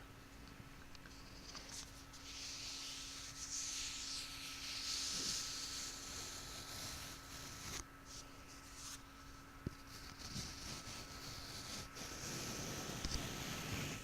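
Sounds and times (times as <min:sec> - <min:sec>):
object rubbing on microphone: 0:09.8 - 0:14.0.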